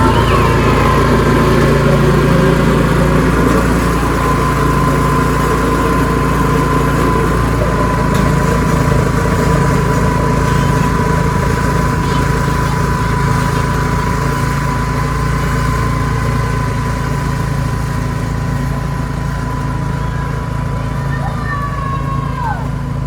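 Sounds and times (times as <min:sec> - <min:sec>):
high steady whine: 0:00.0 - 0:15.2
snowblower engine running: 0:00.0 - 0:23.0.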